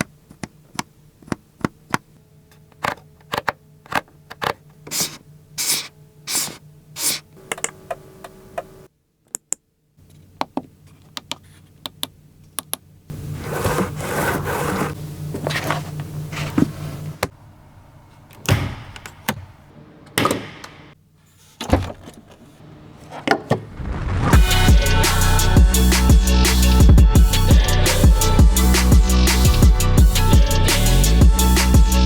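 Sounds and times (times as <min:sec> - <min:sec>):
rubbing sliding sounds: 0:04.4 - 0:07.3, 0:13.1 - 0:17.3.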